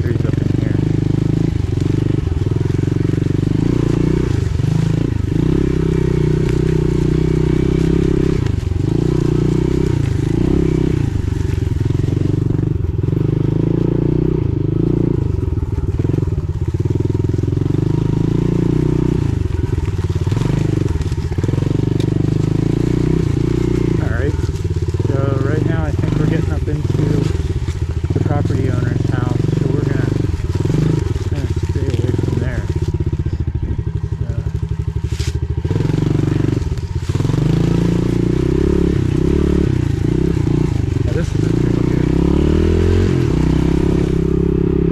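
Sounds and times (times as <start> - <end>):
pit bike engine throttle blips: 0.0 - 44.9.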